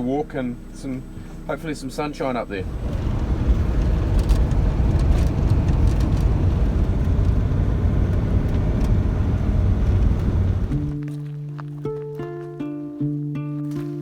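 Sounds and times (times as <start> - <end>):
motorhome engine and road noise: 0.0 - 12.0
light rattles: 2.5 - 11.0.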